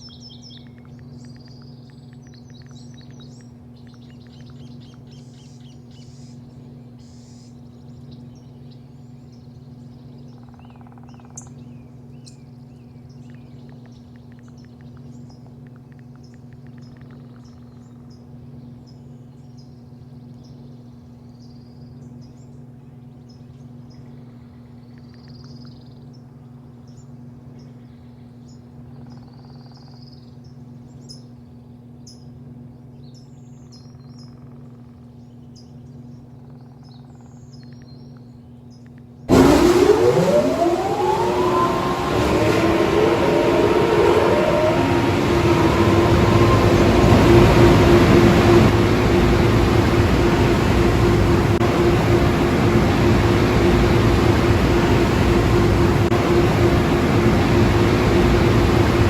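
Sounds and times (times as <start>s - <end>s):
car wash motors whining: 39.3s - 59.0s
loud rushing noise: 39.3s - 59.0s
low steady hum: 39.3s - 59.0s.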